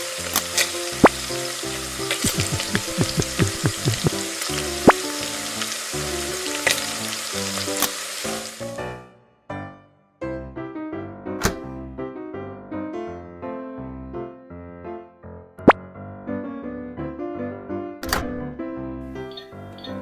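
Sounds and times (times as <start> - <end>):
food sizzling: 0.0 - 8.8.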